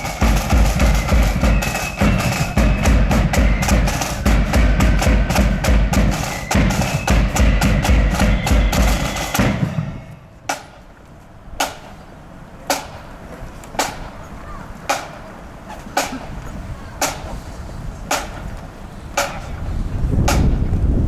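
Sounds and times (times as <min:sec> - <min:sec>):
side drums and bass drum: 0:00.0 - 0:10.8, 0:18.1 - 0:21.0
marching flute band: 0:00.0 - 0:10.9, 0:13.8 - 0:20.7
sharp drum taps: 0:19.2 - 0:19.6, 0:20.2 - 0:20.7.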